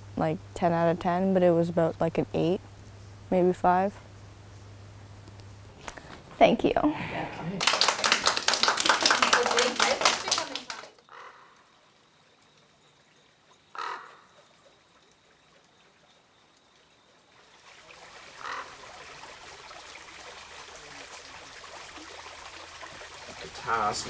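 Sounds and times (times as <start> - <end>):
short bird calls: 11.0 - 11.7, 13.7 - 14.8.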